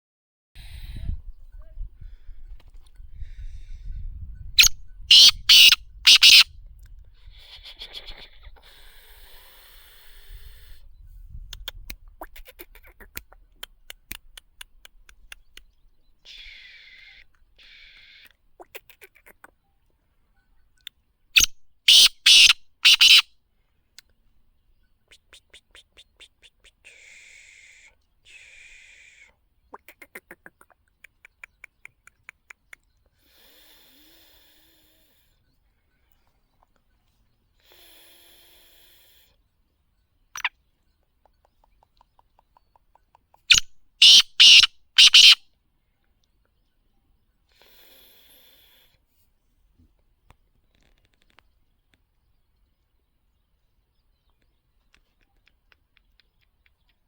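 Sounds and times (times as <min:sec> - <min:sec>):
bird harsh clicking call: 0:04.6 - 0:06.5, 0:11.5 - 0:19.6, 0:20.8 - 0:23.3, 0:25.1 - 0:33.1, 0:40.4 - 0:45.4, 0:54.3 - 0:57.0
hiss: 0:08.7 - 0:10.8
faint clicks and scratching: 0:49.9 - 0:52.1.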